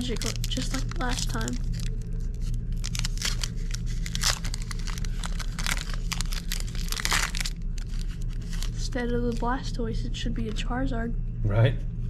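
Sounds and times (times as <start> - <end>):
foil pack crinkling and tearing: 0.0 - 9.5
steady low hum: 0.0 - 12.0.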